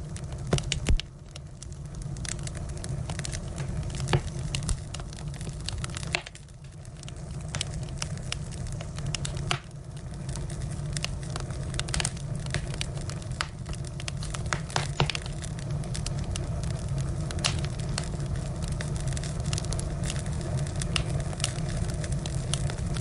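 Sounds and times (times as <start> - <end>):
firewood crackling and popping: 0.0 - 23.0
low fire rumble: 0.0 - 23.0.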